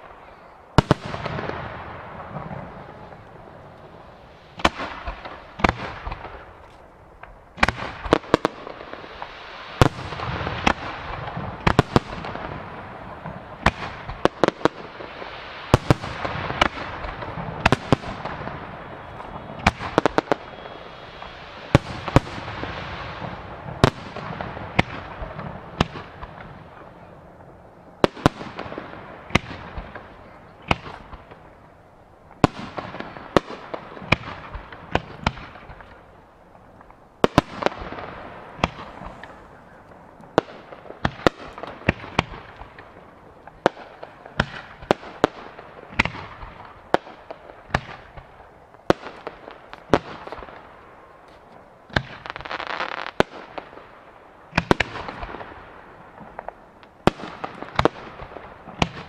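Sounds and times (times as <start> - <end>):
hissing crackle of fireworks: 0.0 - 59.0.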